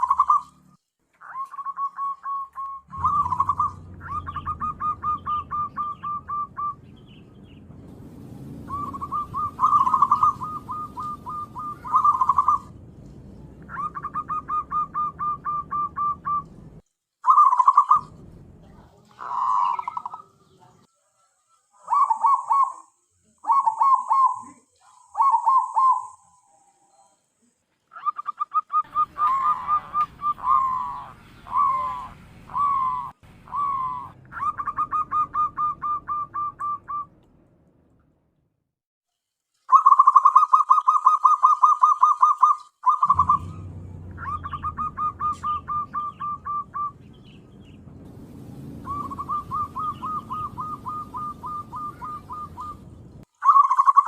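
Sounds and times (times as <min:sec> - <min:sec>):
dove cooing: 0:00.0 - 0:00.6, 0:01.2 - 0:06.9, 0:08.7 - 0:12.8, 0:13.5 - 0:16.6, 0:17.3 - 0:18.2, 0:19.0 - 0:20.6, 0:21.8 - 0:27.0, 0:27.9 - 0:37.1, 0:39.7 - 0:47.3, 0:48.8 - 0:54.0.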